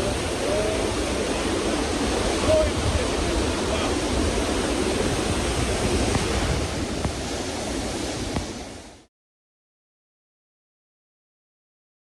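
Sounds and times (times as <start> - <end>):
waterfall roaring: 0.0 - 9.1
wind gusting on microphone: 0.0 - 9.1.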